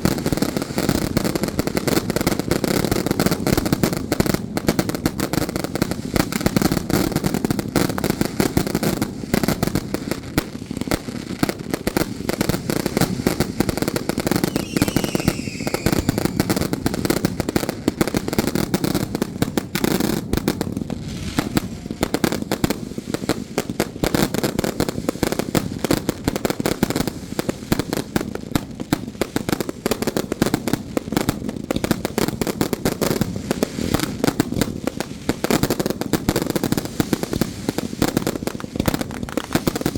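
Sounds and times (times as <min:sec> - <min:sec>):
firecrackers crackling: 0:00.0 - 0:39.9
falling whistle: 0:14.4 - 0:16.6.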